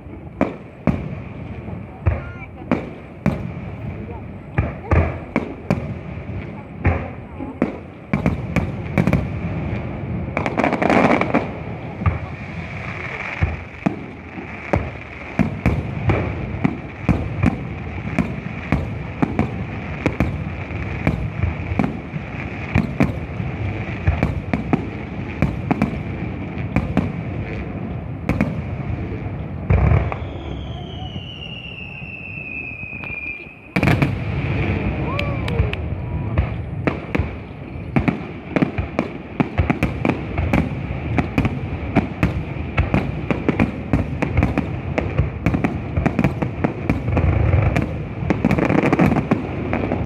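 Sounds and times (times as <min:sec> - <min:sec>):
fireworks bangs and crackling: 0:00.0 - 0:50.0
descending firework whistle: 0:29.1 - 0:36.7.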